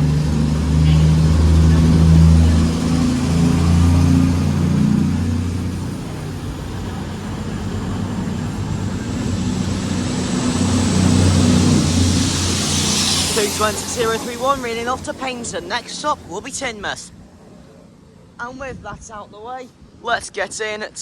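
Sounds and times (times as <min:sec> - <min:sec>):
diesel train engines rumbling: 0:00.0 - 0:20.0.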